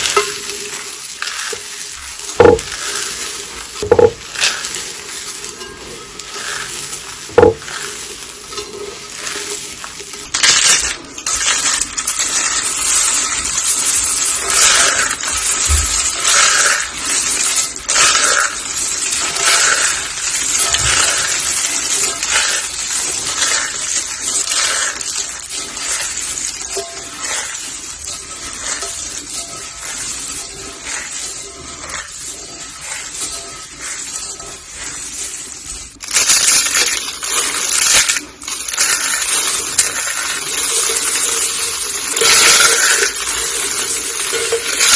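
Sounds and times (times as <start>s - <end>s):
dry soap crushing crunch: 1.4s - 3.1s.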